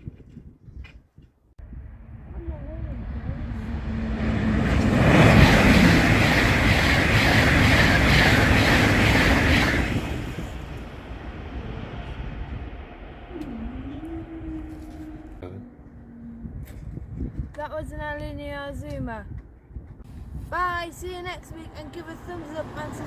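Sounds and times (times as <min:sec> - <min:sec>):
train rushing past: 0:01.6 - 0:16.2, 0:20.8 - 0:23.0
wheels clattering on rails: 0:02.1 - 0:15.2.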